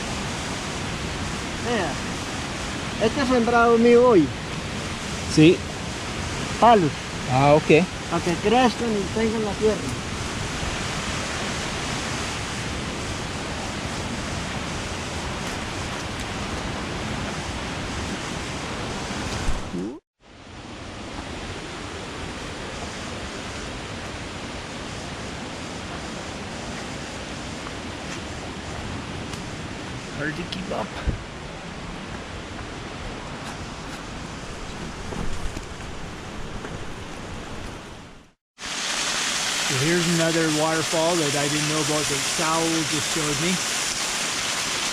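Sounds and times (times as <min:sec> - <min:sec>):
waterfall rushing: 0:00.0 - 0:19.8, 0:38.6 - 0:44.9.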